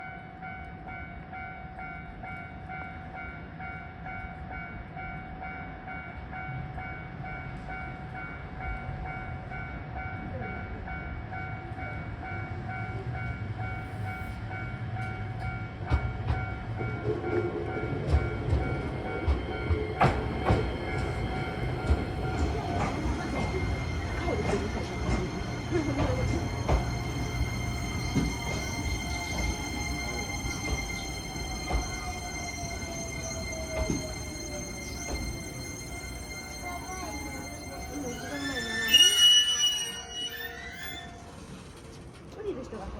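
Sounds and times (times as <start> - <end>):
electric train rumble: 0.0 - 42.9
brake squeal: 36.5 - 41.9.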